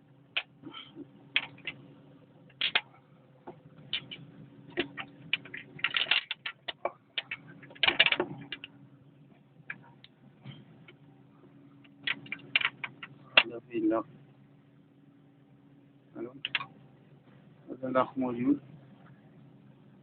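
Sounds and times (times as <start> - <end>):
faint steady hum: 0.0 - 20.0
metal parts clinking and knocking: 4.8 - 8.7.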